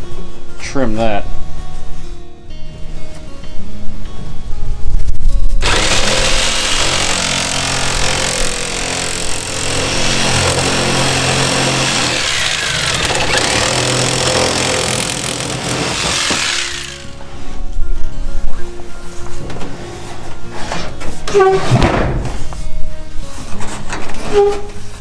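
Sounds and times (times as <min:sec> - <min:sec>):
power saw cutting board: 0:05.6 - 0:17.2.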